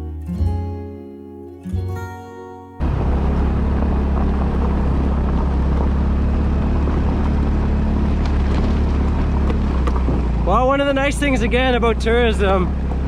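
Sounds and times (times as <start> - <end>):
wind noise on microphone: 2.8 - 10.4
vehicle engine humming: 2.8 - 13.0.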